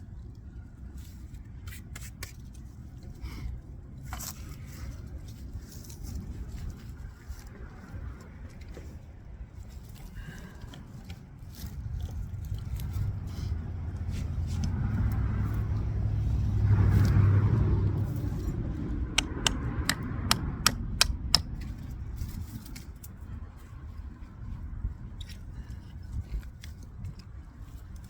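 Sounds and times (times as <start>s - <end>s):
vehicle engine passing: 12.5s - 21.4s
sharp clicks or knocks: 19.2s - 21.6s.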